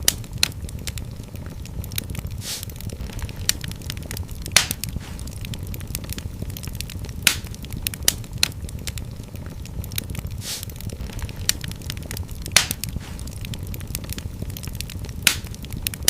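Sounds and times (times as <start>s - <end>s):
fire crackling: 0.0s - 16.0s
loud pops of fire: 0.0s - 16.0s
brief hiss: 2.4s - 2.7s, 10.4s - 10.7s.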